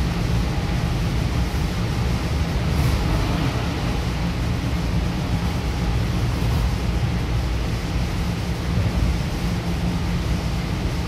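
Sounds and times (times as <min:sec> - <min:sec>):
rumble of wheels on track: 0:00.0 - 0:11.0.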